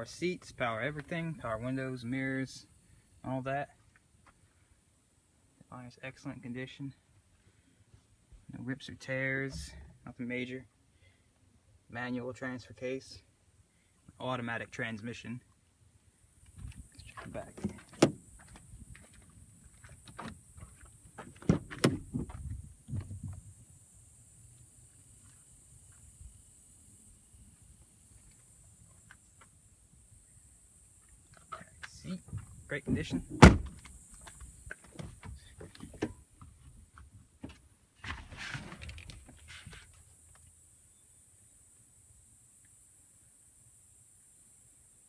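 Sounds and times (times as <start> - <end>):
truck door unlatching and opening: 17.4 - 18.2, 21.4 - 22.4, 32.9 - 33.8.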